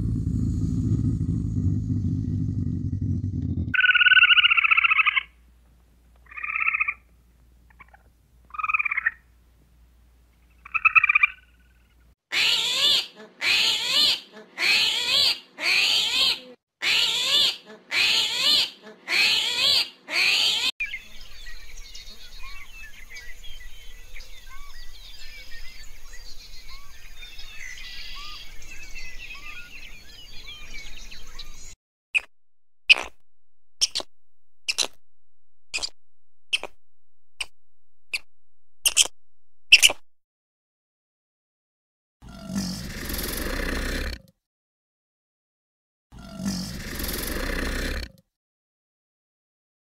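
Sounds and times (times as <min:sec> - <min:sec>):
squirrel calls: 0:03.8 - 0:05.3, 0:10.6 - 0:11.6, 0:12.3 - 0:20.7, 0:32.9 - 0:33.2, 0:33.8 - 0:34.1, 0:34.7 - 0:34.9, 0:38.1 - 0:39.1, 0:39.7 - 0:40.0
small chirps: 0:32.9 - 0:33.2, 0:33.8 - 0:35.0, 0:35.6 - 0:40.0.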